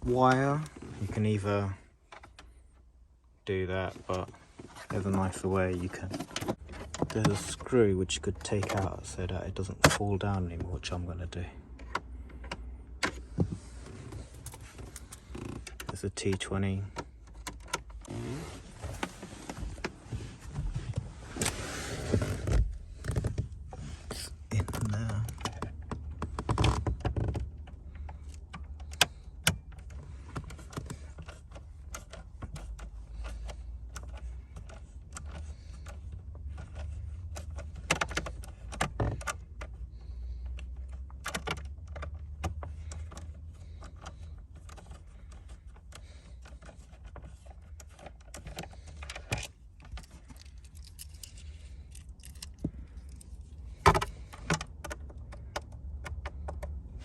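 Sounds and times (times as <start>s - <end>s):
small metallic clicks and rattles: 24.5s - 57.0s.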